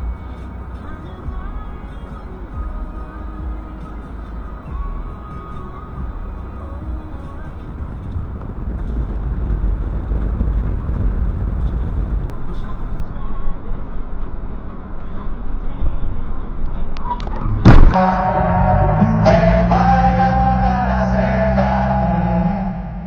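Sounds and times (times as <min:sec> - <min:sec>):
vehicle road and engine rumble: 0:00.0 - 0:13.0
sudden loud bang: 0:06.2 - 0:13.0, 0:17.6 - 0:21.4.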